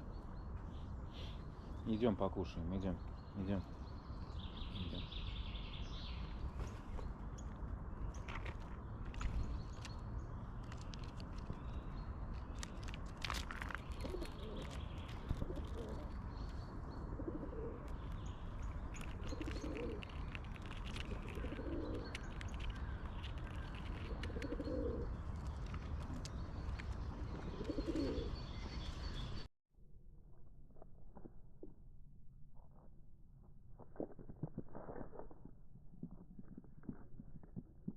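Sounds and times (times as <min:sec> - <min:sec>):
small birds chirping: 0:00.0 - 0:29.5
pigeon cooing: 0:14.0 - 0:16.1, 0:17.0 - 0:17.9, 0:19.2 - 0:20.1, 0:21.1 - 0:22.2, 0:24.1 - 0:25.1, 0:27.4 - 0:28.3.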